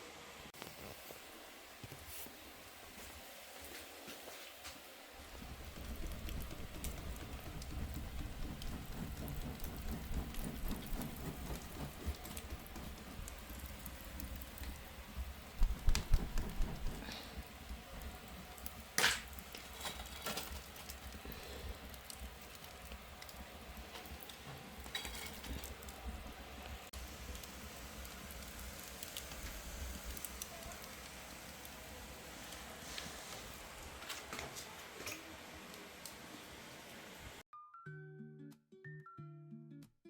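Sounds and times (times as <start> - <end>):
firewood crackling and popping: 5.2 - 36.2.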